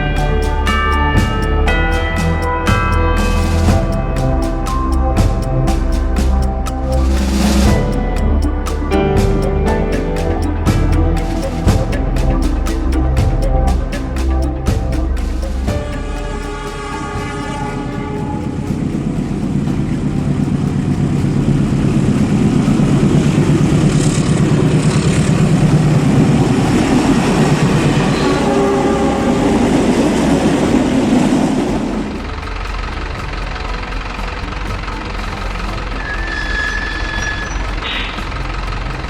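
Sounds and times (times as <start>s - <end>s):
train wheels rumbling on track: 0.0s - 39.0s.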